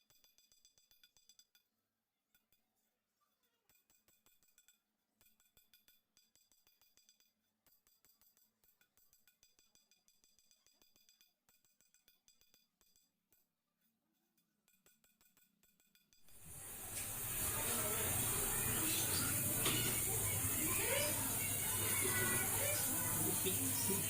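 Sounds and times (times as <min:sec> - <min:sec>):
faint rapid metallic clicking: 0:00.0 - 0:01.7, 0:03.4 - 0:13.4.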